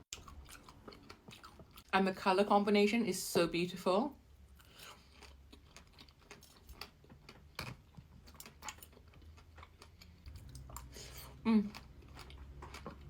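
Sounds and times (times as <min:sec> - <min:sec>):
wet chewing clicks and smacks: 0:00.1 - 0:01.9, 0:04.6 - 0:13.0.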